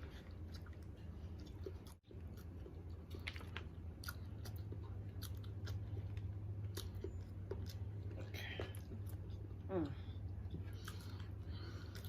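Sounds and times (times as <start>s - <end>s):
chewing and biting seafood: 0.0s - 12.0s.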